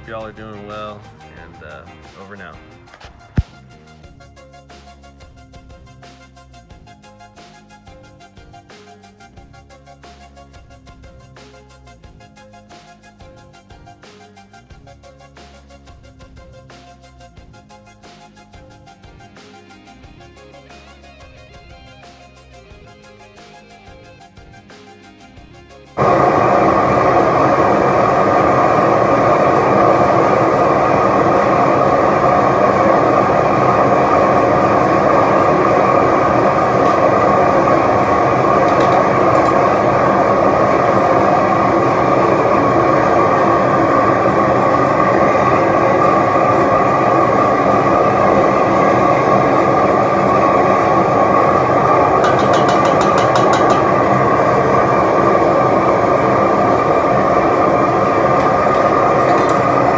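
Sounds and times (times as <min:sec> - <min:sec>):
furnace burner roaring: 0:00.0 - 0:03.6, 0:26.0 - 0:59.9.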